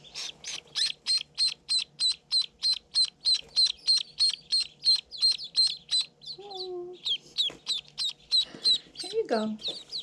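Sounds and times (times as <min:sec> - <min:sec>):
duckling peeping: 0:00.0 - 0:10.0.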